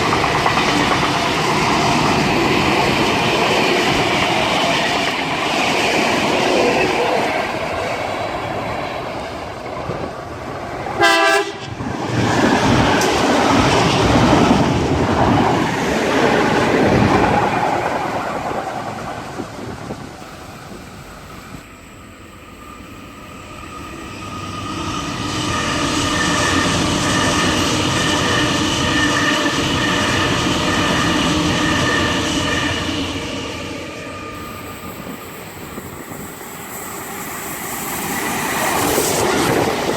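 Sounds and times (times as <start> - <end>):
train passing at high speed: 0.0 - 39.9
train whine over wheel rumble: 0.0 - 39.9
train horn blast: 11.0 - 11.8.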